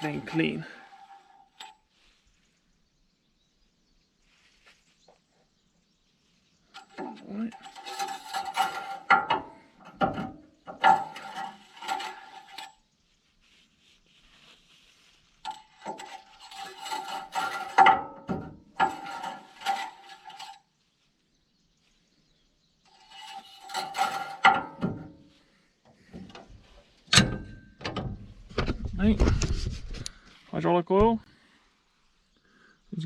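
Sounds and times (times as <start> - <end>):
metal clattering and scraping: 0.0 - 1.9, 6.7 - 12.9, 15.3 - 20.8, 22.9 - 30.1.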